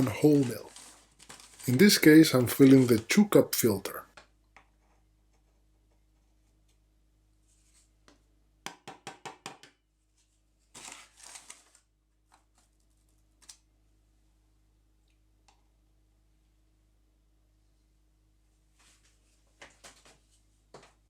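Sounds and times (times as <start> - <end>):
rustling scrape: 0.0 - 2.0, 10.8 - 11.8.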